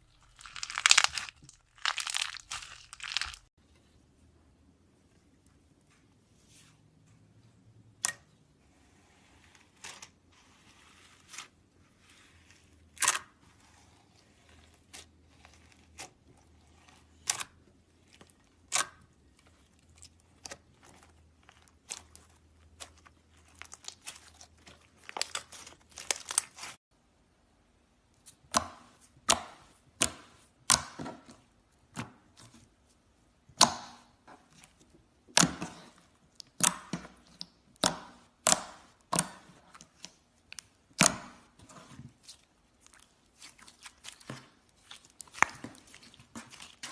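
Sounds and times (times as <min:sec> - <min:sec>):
slime popping and crackling: 0:00.0 - 0:03.5.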